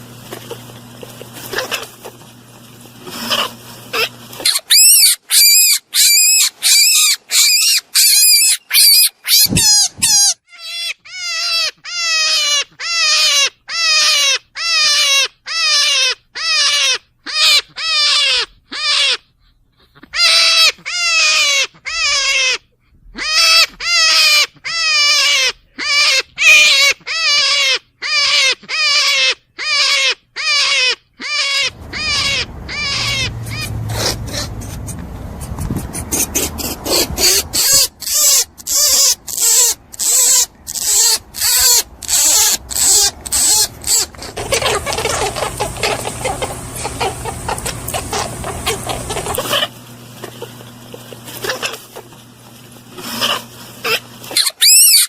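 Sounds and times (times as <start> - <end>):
rabbit squealing: 0.0 - 55.0.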